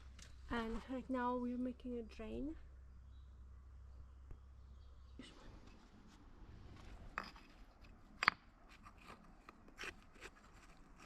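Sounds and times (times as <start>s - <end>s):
stones clicking and scraping: 6.8s - 11.0s.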